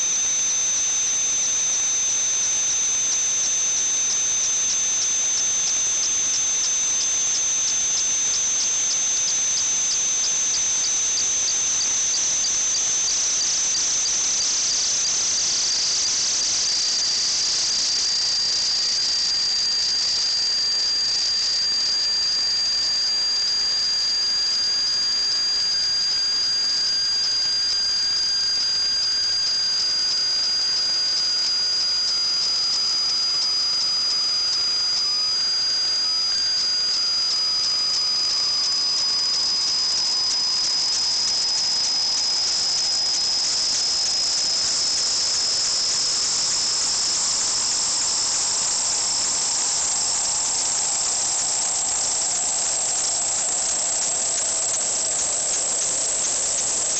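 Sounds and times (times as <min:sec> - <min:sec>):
steady hiss: 0:29.8 - 0:56.9.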